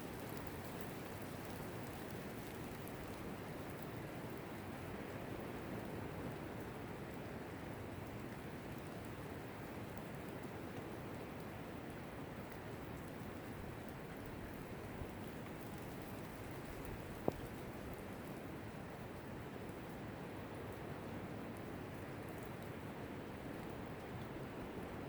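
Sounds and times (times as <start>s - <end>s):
steady rainfall: 0.0s - 25.0s.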